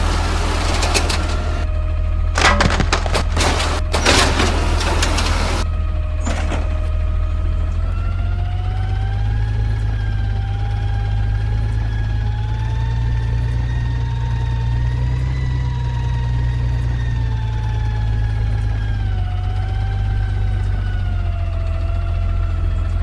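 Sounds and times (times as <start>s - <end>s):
diesel engine drone: 0.0s - 13.7s.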